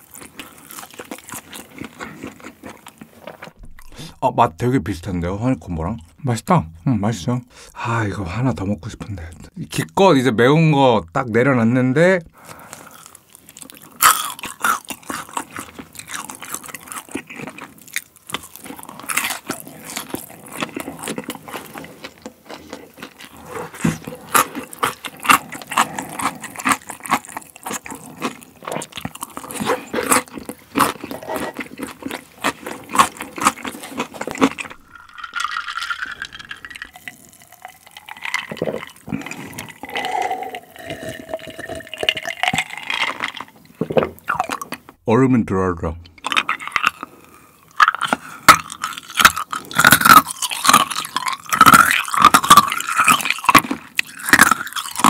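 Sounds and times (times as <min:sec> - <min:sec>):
close chewing with wet smacks: 0:00.0 - 0:04.1, 0:12.8 - 0:40.0, 0:46.2 - 0:55.0
gulping a drink: 0:22.8 - 0:32.0, 0:33.4 - 0:44.9.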